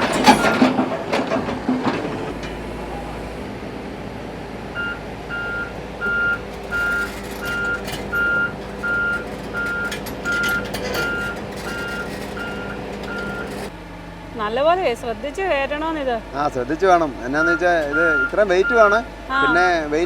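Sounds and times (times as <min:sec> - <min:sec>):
excavator travel alarm beeping: 0:00.0 - 0:00.8, 0:04.7 - 0:13.7, 0:17.2 - 0:20.0
metal clanks: 0:00.0 - 0:03.4, 0:05.5 - 0:13.7
diesel engine running: 0:00.0 - 0:20.0.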